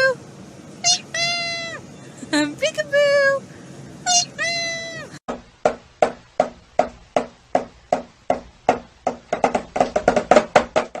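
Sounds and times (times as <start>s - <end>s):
hollow percussive knocks: 5.3s - 11.0s.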